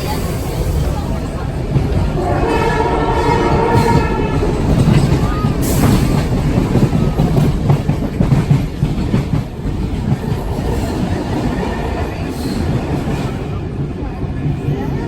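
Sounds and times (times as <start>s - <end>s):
train wheels clattering on rails: 0.0s - 15.0s
train horn: 2.1s - 5.0s.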